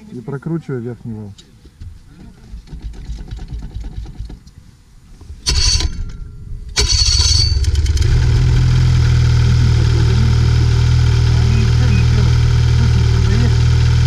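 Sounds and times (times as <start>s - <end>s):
snowmobile engine starting: 5.5s - 14.0s
snowmobile engine idling: 6.7s - 14.0s.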